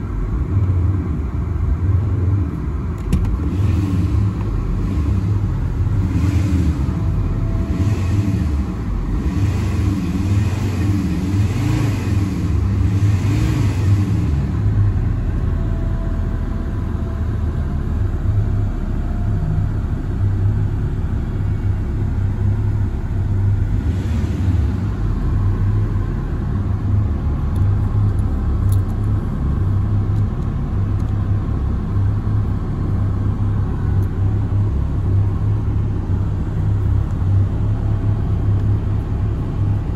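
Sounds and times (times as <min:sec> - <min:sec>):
diesel engine idling: 0:04.1 - 0:11.3, 0:14.1 - 0:39.9.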